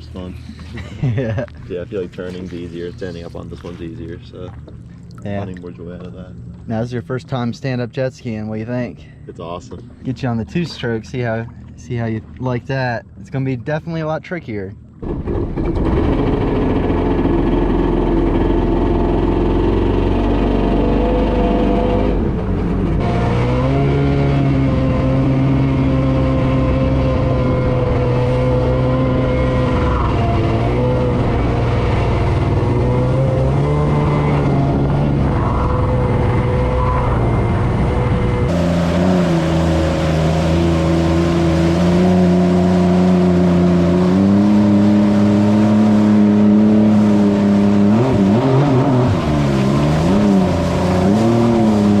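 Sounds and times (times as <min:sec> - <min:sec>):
jet ski engine revving: 0:15.0 - 0:52.0.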